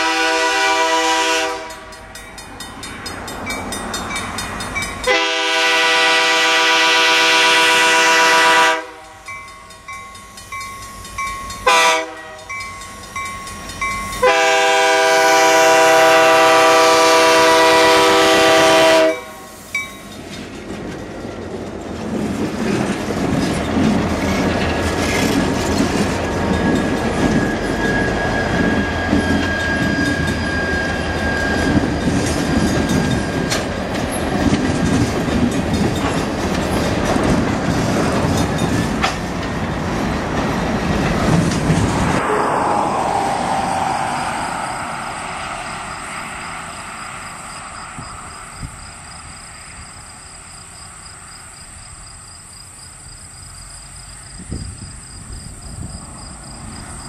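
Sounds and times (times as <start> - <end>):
locomotive air horn blasts: 0.0 - 1.9, 5.1 - 9.2, 11.6 - 12.5, 14.2 - 19.7, 42.2 - 42.6
train rolling past rumbling: 0.0 - 57.0
wheels clacking over rail joints: 1.6 - 5.6, 19.8 - 42.2.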